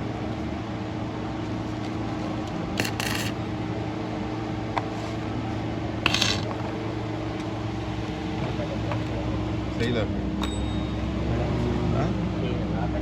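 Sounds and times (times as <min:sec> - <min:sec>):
metal clinking and scraping: 0:02.8 - 0:03.4, 0:06.1 - 0:06.8.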